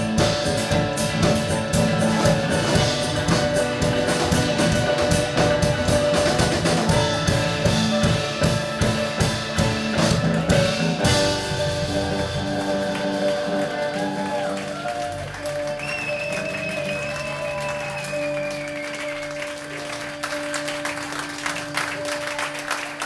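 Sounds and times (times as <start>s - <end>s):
drum kit steady beat: 0.0s - 15.7s
bass guitar: 0.0s - 23.0s
electric guitar chords: 0.0s - 23.0s.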